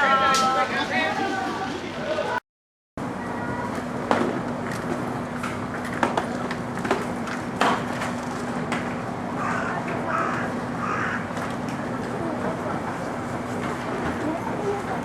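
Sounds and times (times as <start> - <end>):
steady low street hum: 3.0 - 15.0.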